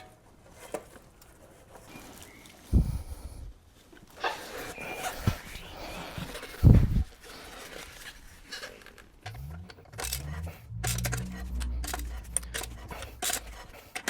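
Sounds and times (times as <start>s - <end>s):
low hum changing pitch: 9.3s - 14.0s.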